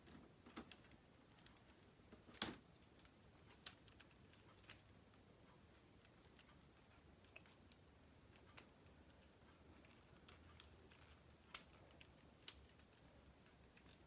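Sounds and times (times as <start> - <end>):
plastic pieces clicking and rattling: 9.7 - 14.0.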